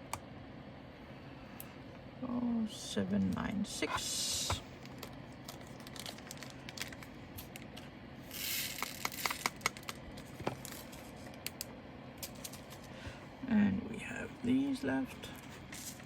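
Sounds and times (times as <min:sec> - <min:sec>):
plastic bag crinkling: 0:04.8 - 0:07.8, 0:08.5 - 0:11.4.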